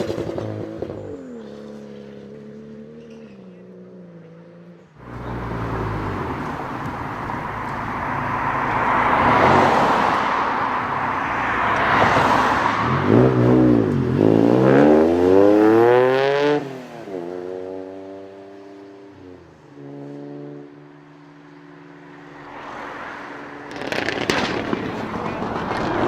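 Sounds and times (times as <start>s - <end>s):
car engine revving: 5.0s - 18.4s.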